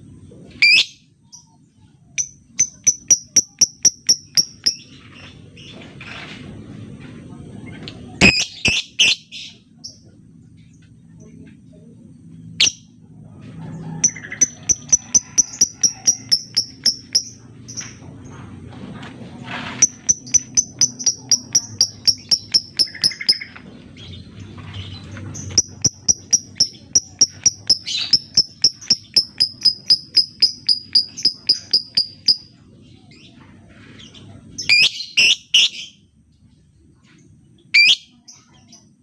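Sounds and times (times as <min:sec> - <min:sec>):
lovebird chirping: 0:00.6 - 0:05.7, 0:08.2 - 0:10.0, 0:14.0 - 0:17.9, 0:19.8 - 0:24.2, 0:24.8 - 0:33.3, 0:34.6 - 0:36.0, 0:37.7 - 0:38.9.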